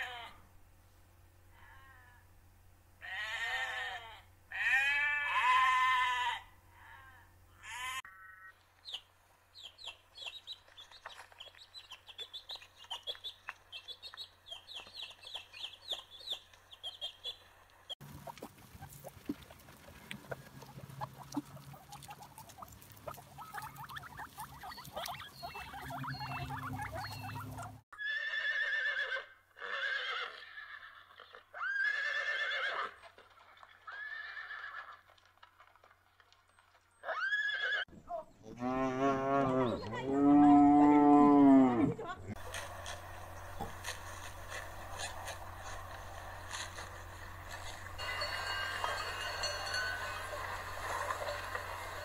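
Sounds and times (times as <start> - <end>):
horse whinnying: 27.4 - 33.0, 33.9 - 35.0, 37.0 - 37.9
low outdoor hum: 38.0 - 52.0
faint rustling: 42.3 - 52.0.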